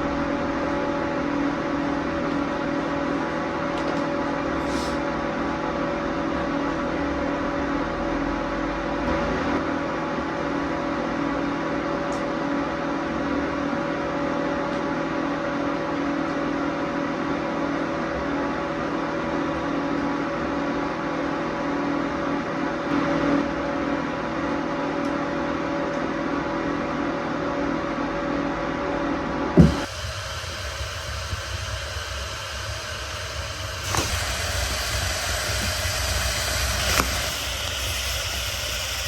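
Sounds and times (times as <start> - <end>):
steady machine hum: 0.0 - 39.0
even hiss: 29.6 - 39.0.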